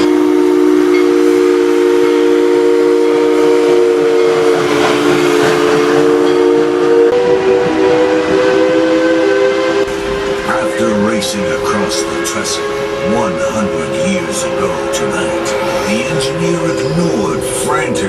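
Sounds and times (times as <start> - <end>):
steam hissing: 0.0 - 6.8
steam locomotive chime whistle: 0.0 - 18.0.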